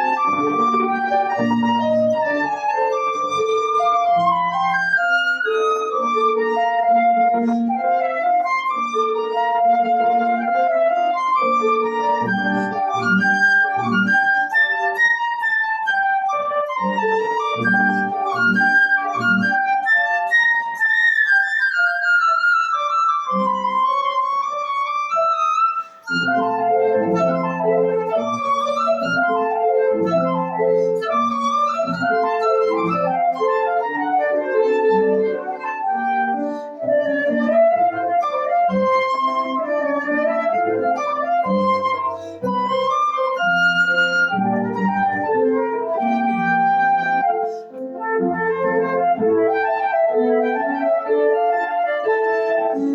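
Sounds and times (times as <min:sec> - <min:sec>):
flute playing slow melody: 0:00.0 - 0:52.9
piano chords: 0:00.0 - 0:52.9.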